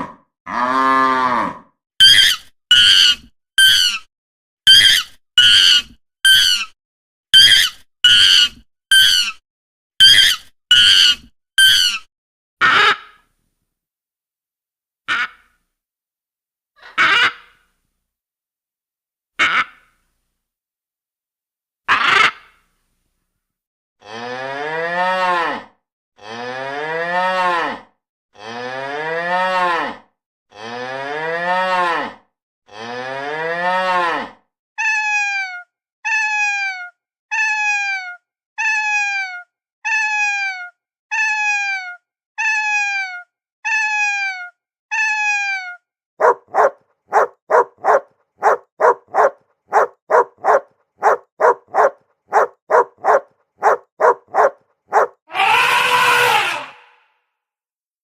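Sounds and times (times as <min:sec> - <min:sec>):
cow mooing: 0:00.0 - 0:01.6
dog barking: 0:46.2 - 0:55.2.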